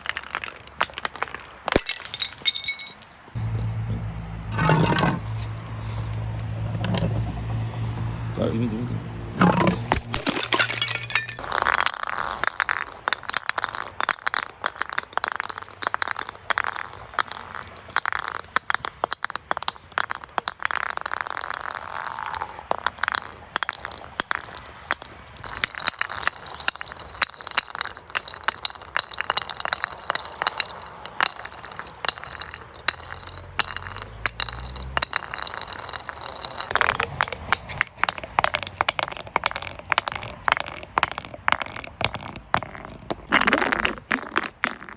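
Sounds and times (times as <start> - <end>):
glass bottles clinking and breaking: 1.1 - 44.9.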